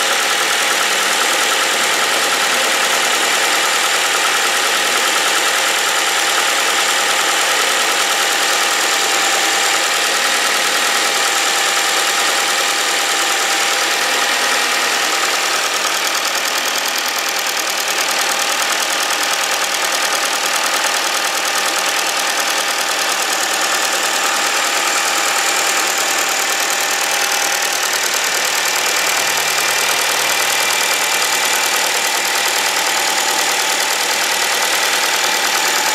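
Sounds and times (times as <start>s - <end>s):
car engine idling: 0.0s - 35.9s
fuel injector chatter: 0.0s - 35.9s.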